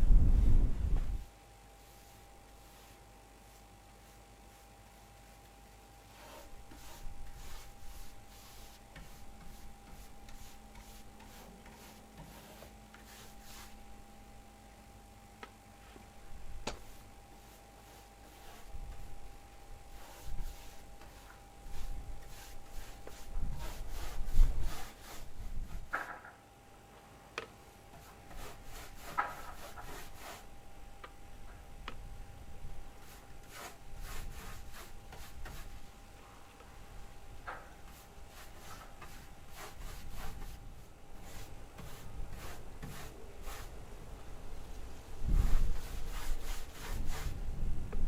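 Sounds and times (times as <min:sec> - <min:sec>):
paintbrush brushing on wood: 0:01.8 - 0:13.9, 0:16.7 - 0:19.3, 0:19.9 - 0:26.0, 0:28.0 - 0:30.5, 0:33.0 - 0:35.9, 0:37.8 - 0:43.8, 0:45.3 - 0:47.4.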